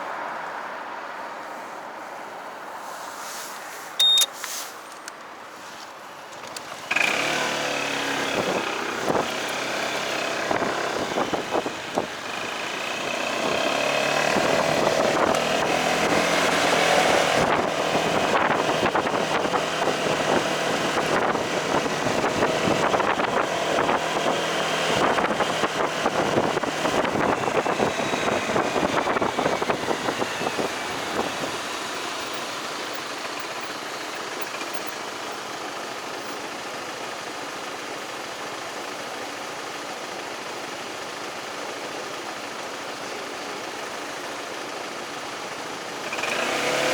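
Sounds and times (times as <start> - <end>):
motorcycle engine: 6.3 - 46.9
wind rushing over microphone: 8.2 - 31.9.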